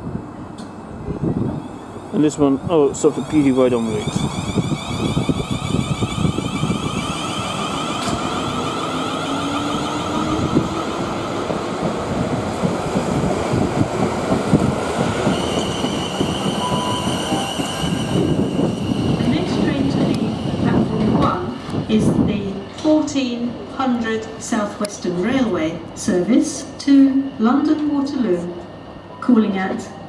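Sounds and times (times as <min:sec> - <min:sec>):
train wheels rumbling on rail: 0:00.0 - 0:29.0
traction motor whine: 0:03.0 - 0:11.0.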